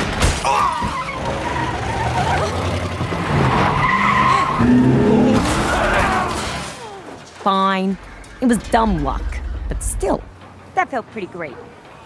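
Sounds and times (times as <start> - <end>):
car tyres squealing: 0.5 - 6.6.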